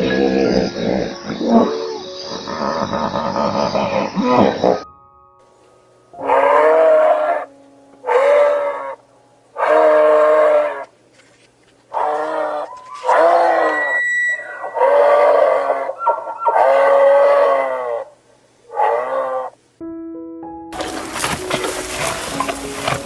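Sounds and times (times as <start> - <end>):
animal calling: 0.0 - 4.9, 6.2 - 9.0, 9.6 - 10.9, 11.9 - 19.6, 20.8 - 23.0.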